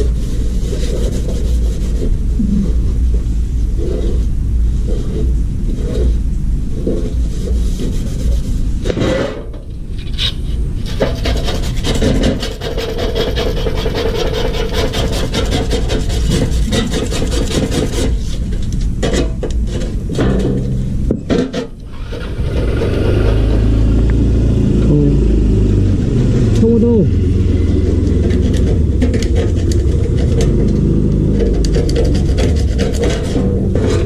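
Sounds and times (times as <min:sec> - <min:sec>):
fast rough rasping: 0:00.0 - 0:02.9, 0:10.8 - 0:18.7, 0:26.4 - 0:34.0
steady low rumble: 0:00.0 - 0:34.0.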